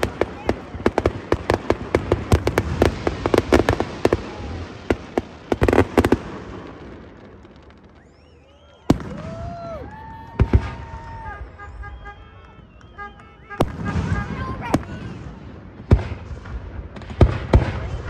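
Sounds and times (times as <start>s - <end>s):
firework bangs: 0.0s - 18.0s
fireworks crackling: 0.0s - 18.0s.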